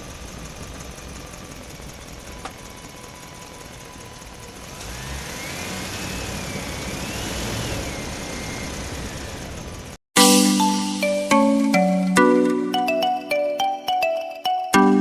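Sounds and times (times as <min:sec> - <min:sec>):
engine running and revving: 0:00.0 - 0:10.0
chiming music jingle: 0:10.2 - 0:15.0.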